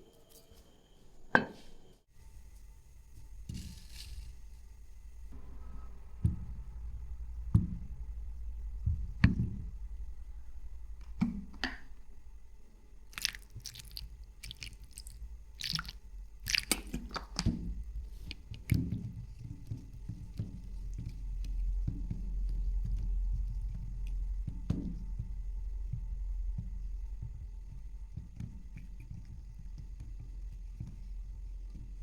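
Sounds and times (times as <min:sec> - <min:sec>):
low steady hum: 0:02.1 - 0:32.0
person chewing food: 0:13.1 - 0:17.5, 0:18.1 - 0:19.4.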